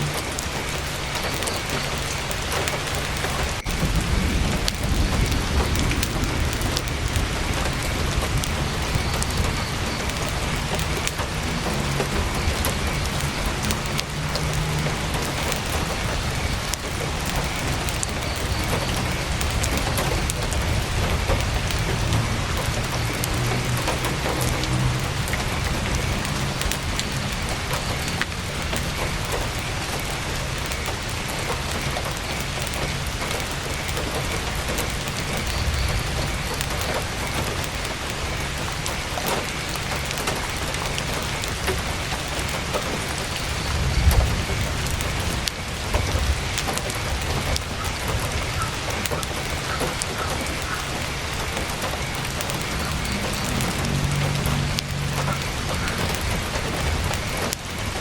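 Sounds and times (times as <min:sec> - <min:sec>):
campfire crackling: 0:00.0 - 0:58.0
heavy rain on a tent: 0:00.0 - 0:58.0
low rumble: 0:03.6 - 0:29.9.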